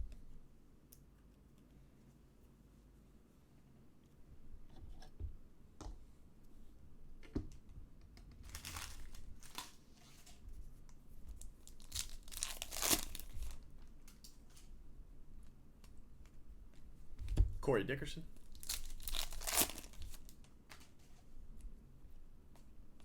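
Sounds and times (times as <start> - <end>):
foil wrapper tearing and crinkling: 8.4 - 9.8, 11.6 - 13.6, 18.5 - 20.8.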